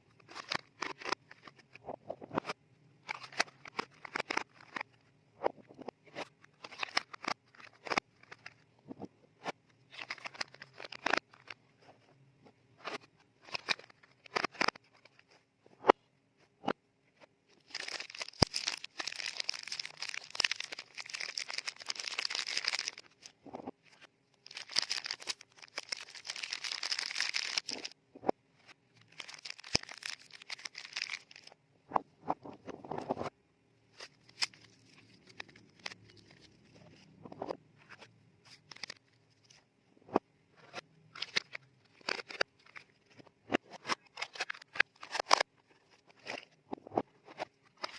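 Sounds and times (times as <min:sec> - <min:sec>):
paper wrappers crinkling: 0:09.9 - 0:11.5, 0:17.6 - 0:23.3, 0:23.9 - 0:28.0, 0:29.1 - 0:31.5, 0:38.5 - 0:39.1.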